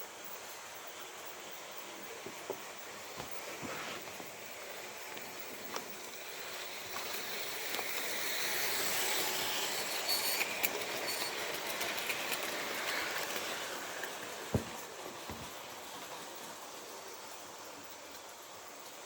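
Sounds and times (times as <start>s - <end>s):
model train rolling on track: 0.0s - 19.0s
wheels clicking over track: 0.4s - 19.0s.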